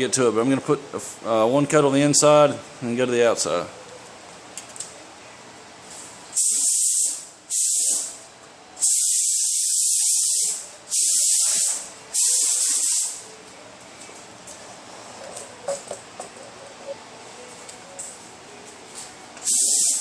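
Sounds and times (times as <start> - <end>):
spray gun trigger: 6.4 - 8.1, 8.8 - 13.2, 19.4 - 20.0
spray gun hissing: 6.4 - 8.2, 8.8 - 13.2, 19.4 - 20.0.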